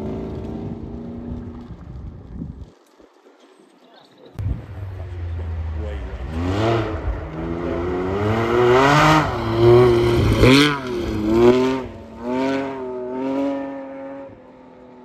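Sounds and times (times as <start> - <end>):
rally car engine accelerating: 4.4 - 14.9.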